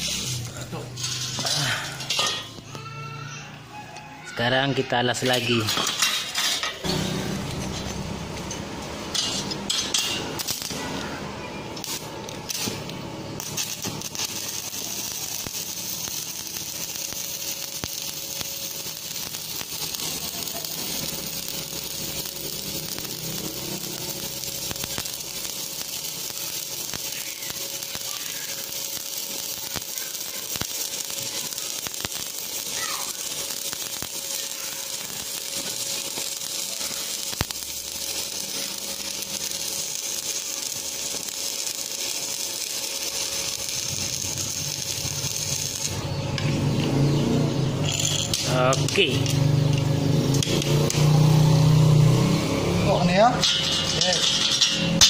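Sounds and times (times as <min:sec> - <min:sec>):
arc welding crackling sizzle: 0:00.0 - 0:55.0
metal pieces clinking: 0:00.9 - 0:02.6, 0:13.4 - 0:46.5, 0:47.8 - 0:51.0, 0:53.4 - 0:55.0.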